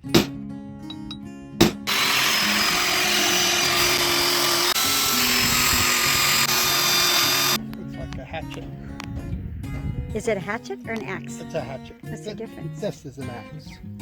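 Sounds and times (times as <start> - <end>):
sharp knock: 0.1 - 0.3
handheld power tool running: 1.9 - 7.6
acoustic guitar music: 10.1 - 14.0.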